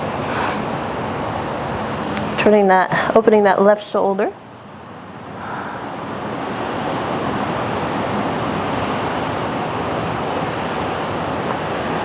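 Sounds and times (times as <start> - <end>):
wind: 0.0 - 12.0
ocean surf breaking: 5.0 - 12.0.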